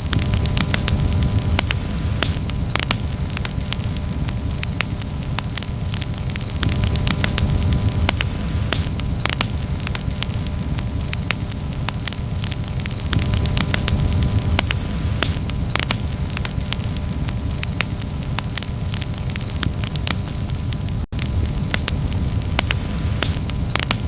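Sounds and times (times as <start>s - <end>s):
campfire crackling and popping: 0.0s - 24.0s
low rumble of flames: 0.0s - 24.0s.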